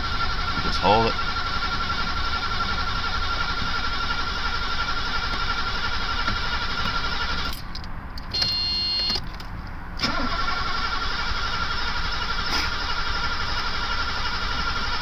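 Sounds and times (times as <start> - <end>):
car engine cranking: 0.0 - 15.0
short tone: 8.4 - 9.2.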